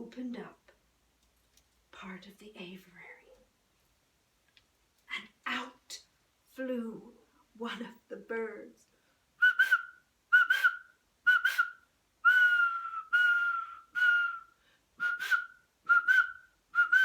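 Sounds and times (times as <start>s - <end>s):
person whistling birdsong: 9.4s - 17.0s.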